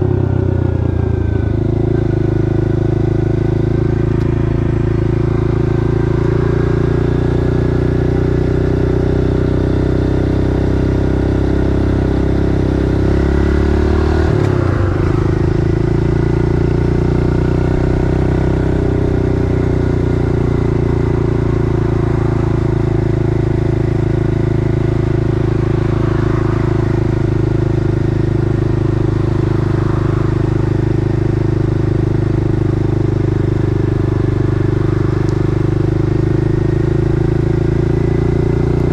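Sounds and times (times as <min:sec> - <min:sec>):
pit bike engine running: 0:00.0 - 0:38.9.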